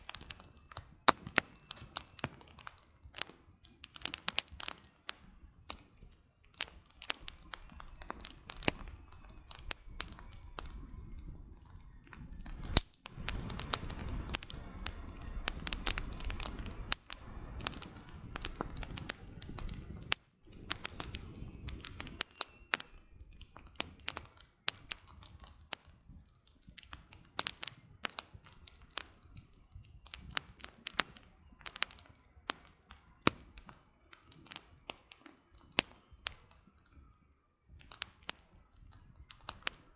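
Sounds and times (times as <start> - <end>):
fire rushing: 0.0 - 36.6
campfire crackling and popping: 0.0 - 39.9.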